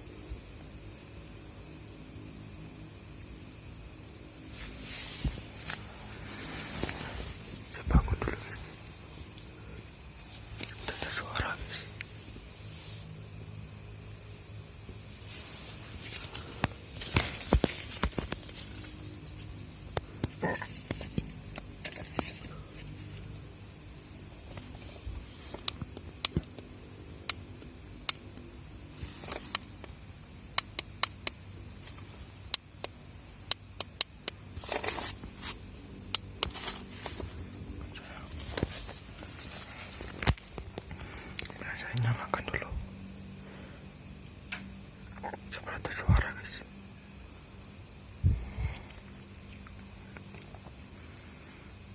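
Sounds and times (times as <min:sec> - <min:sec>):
crickets chirring: 0:00.0 - 0:51.9
sharp clicks: 0:30.5 - 0:34.4.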